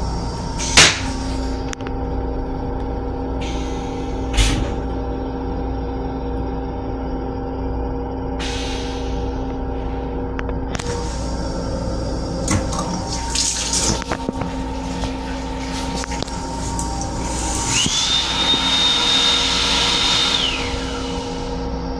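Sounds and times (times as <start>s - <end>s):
train hum: 0.0s - 21.9s
motor whine: 9.4s - 21.9s
water running: 10.8s - 21.3s.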